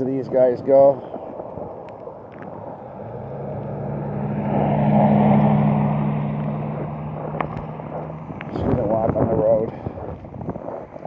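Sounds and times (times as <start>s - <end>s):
vehicle driving past: 2.8s - 9.7s.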